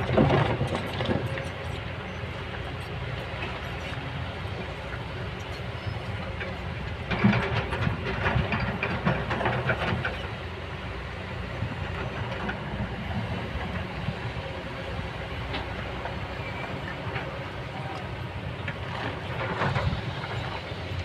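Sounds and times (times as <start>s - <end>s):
clanking and scraping: 0.0s - 1.9s, 5.5s - 10.4s, 18.6s - 20.7s
excavator running: 0.0s - 21.0s.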